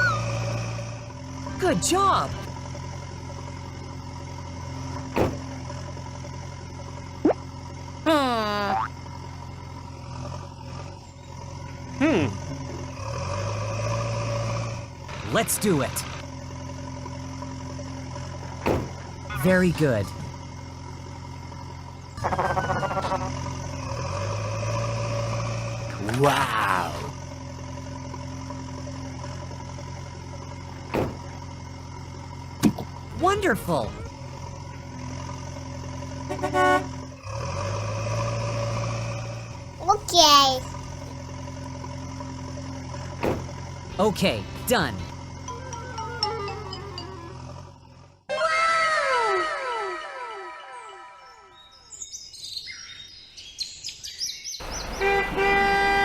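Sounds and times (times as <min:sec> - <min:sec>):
vehicle engine idling: 0:00.0 - 0:37.9, 0:38.6 - 0:48.2
vehicle horn: 0:36.2 - 0:37.0, 0:54.8 - 0:56.0.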